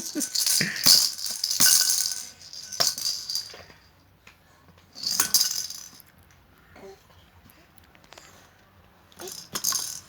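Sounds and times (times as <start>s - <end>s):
rattling shaken: 0.0s - 3.9s, 5.0s - 6.0s, 9.2s - 10.0s.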